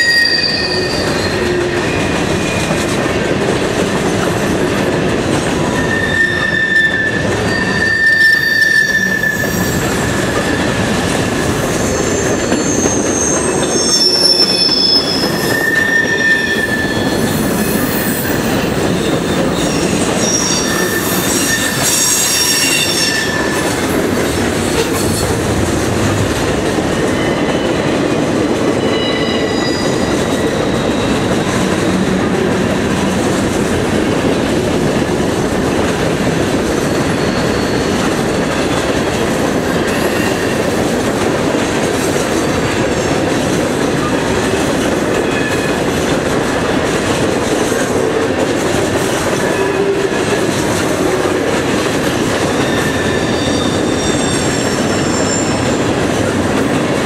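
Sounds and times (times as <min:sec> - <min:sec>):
high wheel squeals: 0:00.0 - 0:02.7, 0:05.8 - 0:11.0, 0:11.6 - 0:24.1, 0:28.8 - 0:32.3, 0:36.7 - 0:38.9, 0:52.4 - 0:56.0
train wheels rumbling on rail: 0:00.0 - 0:57.0.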